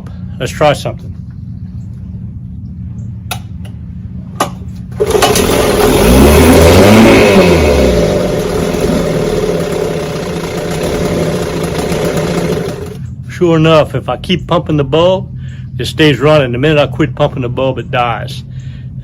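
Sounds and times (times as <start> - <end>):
outboard motor running: 4.9 - 13.2.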